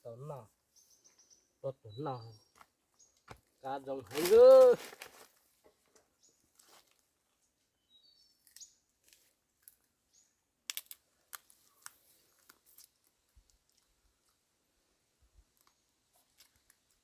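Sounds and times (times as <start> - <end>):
faint high bird chirps: 0.0 - 3.8, 7.3 - 9.0.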